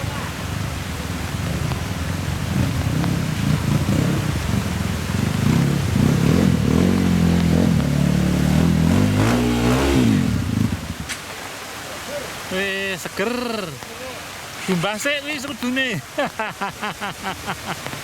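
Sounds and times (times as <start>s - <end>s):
motorcycle engine revving: 2.2s - 11.0s.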